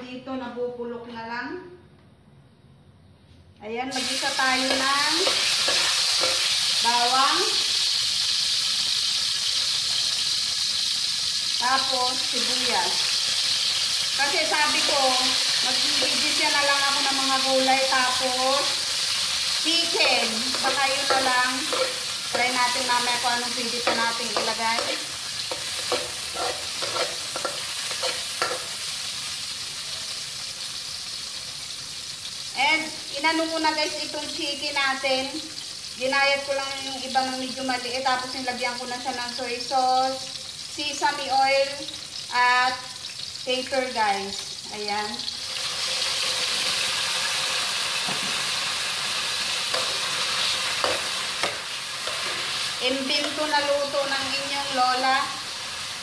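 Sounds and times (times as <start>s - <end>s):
onions sizzling in hot oil: 3.9s - 56.0s
spatula scraping a pan: 4.0s - 6.8s, 19.0s - 29.0s, 49.4s - 53.4s.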